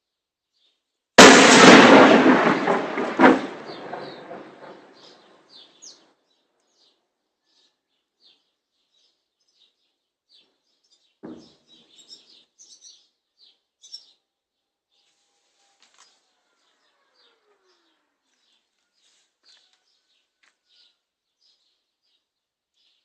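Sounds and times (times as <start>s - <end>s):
small birds chirping: 0.5s - 0.9s, 3.6s - 23.0s
distant blast: 1.2s - 5.8s
shell explosion rumble: 1.2s - 5.8s.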